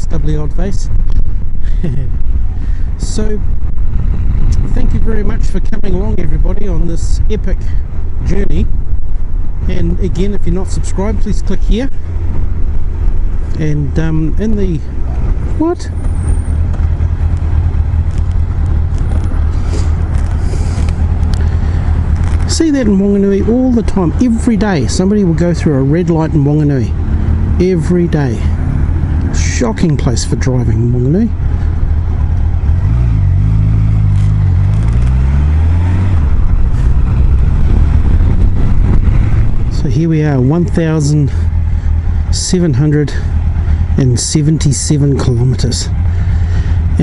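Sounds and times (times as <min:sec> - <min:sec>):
wind rush: 0:00.0 - 0:25.6, 0:31.2 - 0:42.4
motorcycle engine rumble: 0:00.0 - 0:47.0.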